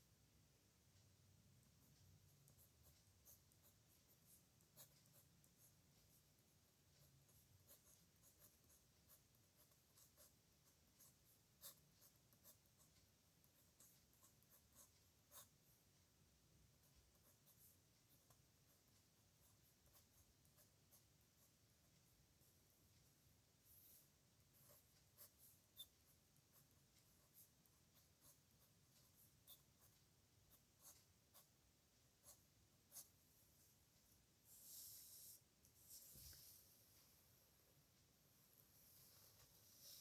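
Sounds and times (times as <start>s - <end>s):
pen nib scratching on paper: 1.6s - 15.8s, 16.7s - 21.6s, 23.7s - 31.6s, 32.2s - 33.2s.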